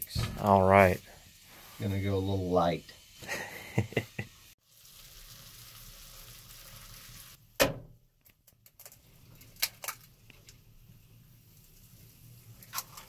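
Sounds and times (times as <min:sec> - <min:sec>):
bacon and eggs sizzling: 0:00.0 - 0:07.6, 0:08.7 - 0:13.0.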